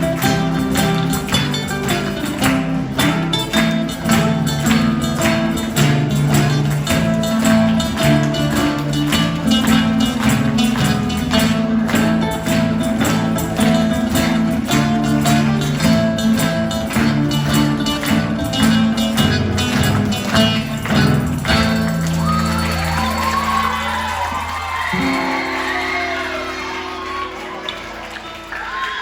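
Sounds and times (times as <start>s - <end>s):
folk acoustic guitar strumming: 0.0s - 29.0s.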